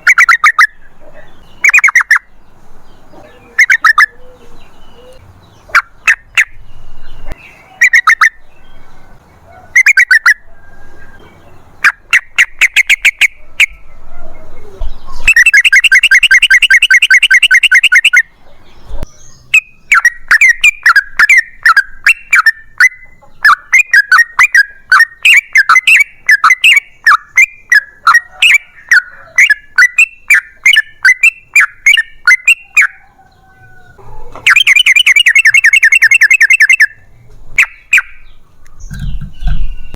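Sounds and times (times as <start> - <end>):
bird singing bubbly phrases: 0.0 - 2.4, 3.0 - 8.7, 9.8 - 10.4, 11.8 - 13.8, 14.5 - 32.9, 34.4 - 39.9
fast rattling bird trill: 0.0 - 2.4, 3.0 - 8.9, 9.8 - 10.4, 11.8 - 13.7, 15.1 - 18.3, 19.1 - 33.0, 34.4 - 37.0, 37.6 - 39.9
quick chattering bird notes: 1.6 - 2.3, 3.1 - 4.2, 34.4 - 37.0.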